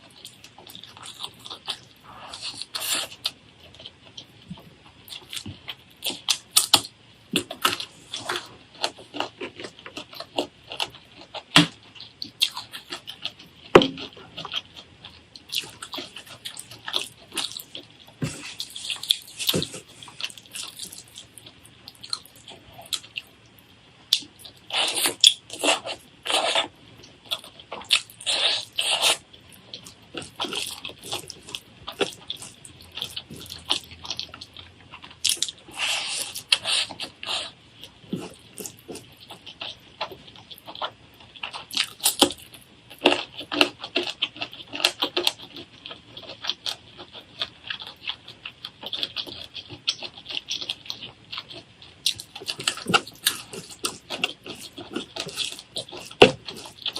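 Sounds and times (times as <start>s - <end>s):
crunching while eating: 0.0s - 56.9s.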